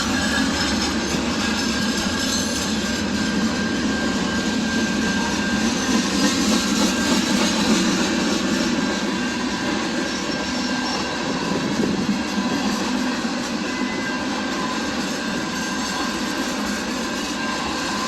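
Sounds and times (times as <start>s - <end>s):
train wheels rolling on rails: 0.0s - 18.0s
faint high squeal: 9.9s - 12.6s, 13.3s - 18.0s.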